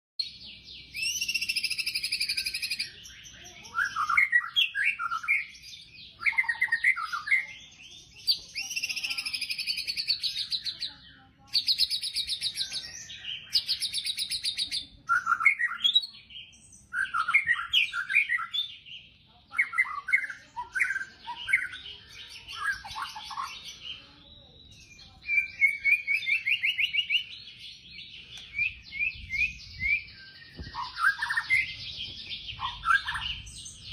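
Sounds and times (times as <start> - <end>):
bird whistled notes: 0.9 - 3.2, 24.8 - 27.3, 28.4 - 33.9.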